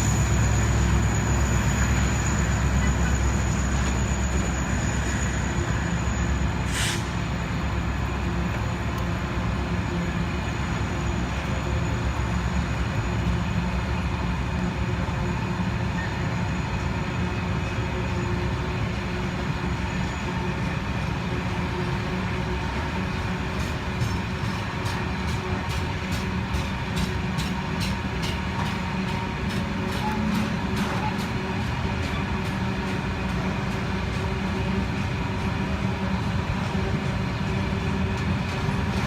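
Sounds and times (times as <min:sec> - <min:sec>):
freight train rumbling: 0:00.0 - 0:39.0
short hiss: 0:06.6 - 0:07.2.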